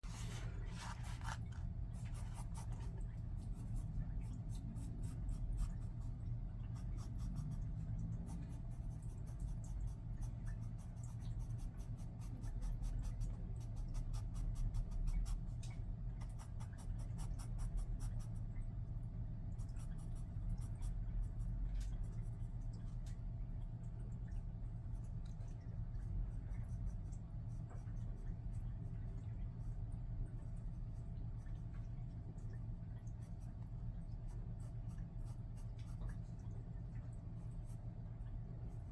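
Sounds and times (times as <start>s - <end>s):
pencil scratching on paper: 0.0s - 6.1s, 8.3s - 15.4s
steady low hum: 0.0s - 38.9s.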